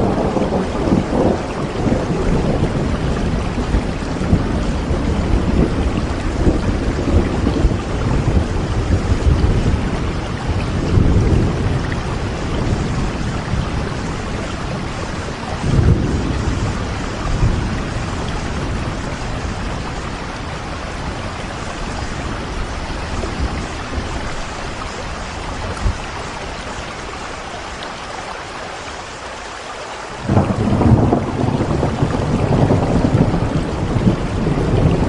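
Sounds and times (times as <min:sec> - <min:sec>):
rolling thunder: 0:00.0 - 0:26.6, 0:30.2 - 0:35.0
steady rain: 0:00.0 - 0:35.0.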